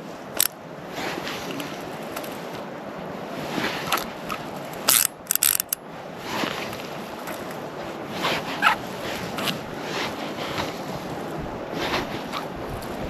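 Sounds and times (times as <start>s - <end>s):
water noise: 0.0s - 13.0s
wind: 0.0s - 13.0s
fishing reel clicking: 4.8s - 5.8s.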